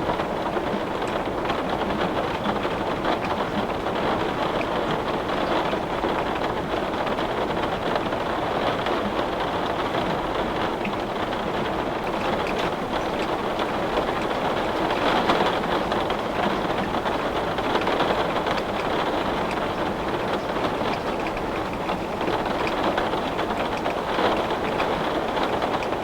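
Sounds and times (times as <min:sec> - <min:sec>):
heavy rain on window glass: 0:00.0 - 0:26.0.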